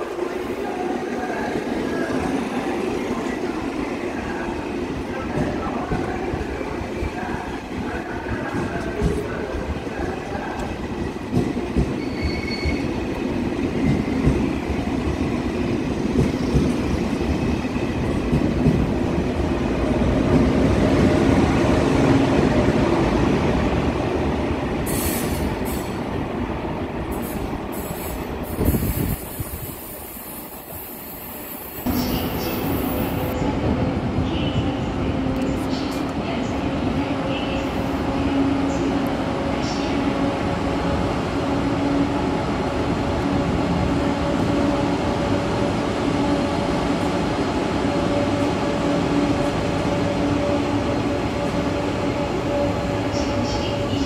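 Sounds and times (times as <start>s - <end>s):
train wheels rumbling on rail: 0.0s - 54.0s
hiss: 24.9s - 25.9s, 27.2s - 31.8s.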